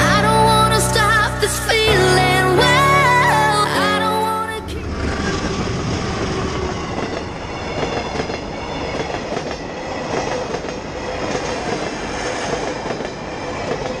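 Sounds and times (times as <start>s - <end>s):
train wheels clattering on track: 5.4s - 14.0s.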